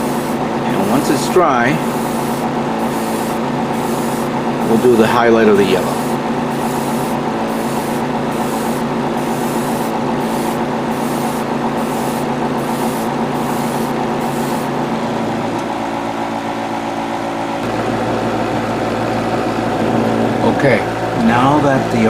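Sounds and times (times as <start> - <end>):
airbrush spray hissing: 0.0 - 4.9, 5.6 - 14.8
compressor motor humming: 0.0 - 22.0.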